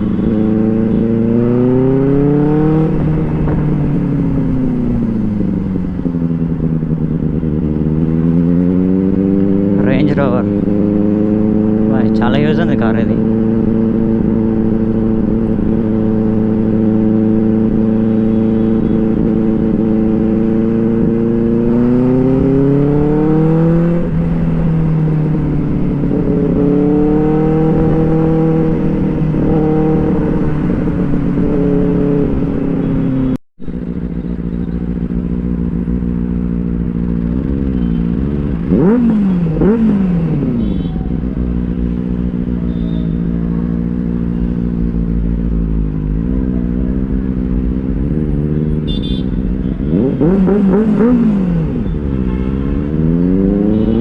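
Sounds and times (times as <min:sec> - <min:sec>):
motorcycle engine accelerating: 0:00.0 - 0:54.0
motorcycle engine revving: 0:00.0 - 0:54.0.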